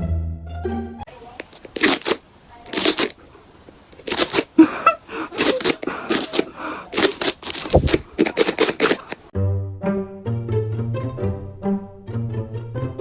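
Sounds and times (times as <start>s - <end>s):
short rustling and scraping: 5.3s - 9.3s.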